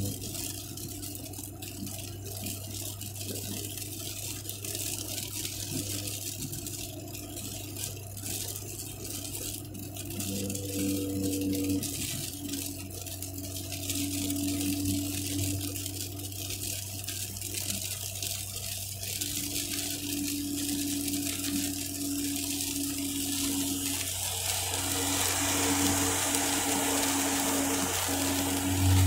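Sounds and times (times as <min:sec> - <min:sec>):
tyres hissing on wet road: 0:07.4 - 0:29.0
car cabin low hum: 0:19.6 - 0:29.0.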